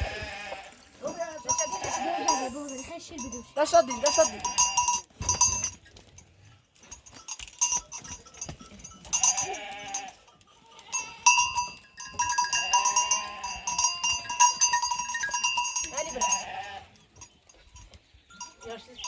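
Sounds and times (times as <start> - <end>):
sheep bleating: 0.0 - 2.9, 3.6 - 5.0, 9.2 - 11.7, 12.3 - 14.0, 15.8 - 17.0
sheep bells clanking: 0.0 - 19.0.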